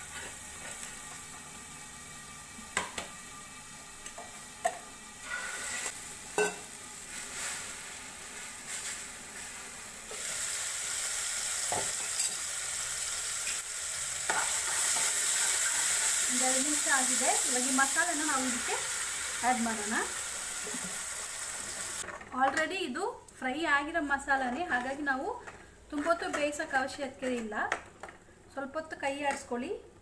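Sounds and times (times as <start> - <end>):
oil sizzling in a pan: 0.0 - 22.0.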